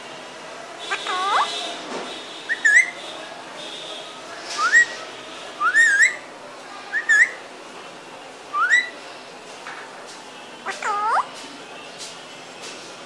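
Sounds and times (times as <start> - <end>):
parrot rising whistles: 4.6 - 5.0.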